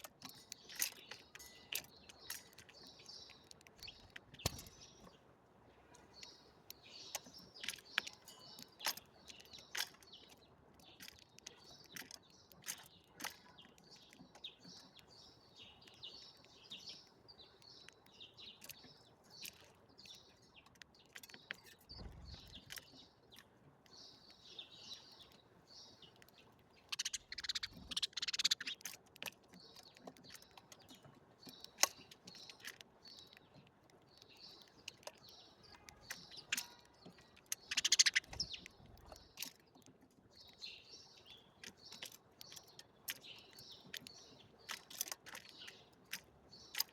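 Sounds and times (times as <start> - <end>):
small songbirds chirping: 0.0 - 46.9
sharp ticks: 26.3 - 33.4, 34.0 - 39.6.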